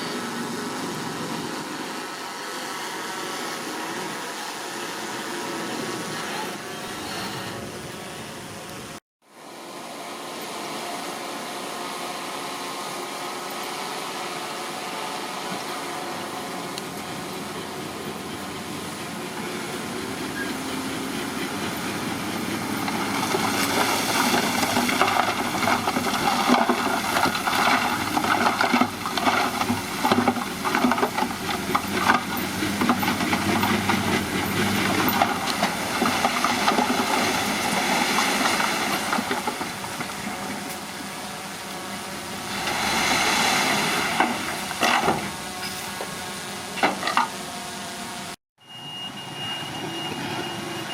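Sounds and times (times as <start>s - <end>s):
bulldozer engine running: 9.6s - 50.9s
clanks and knocks of rocky soil: 22.4s - 41.0s, 43.9s - 46.1s.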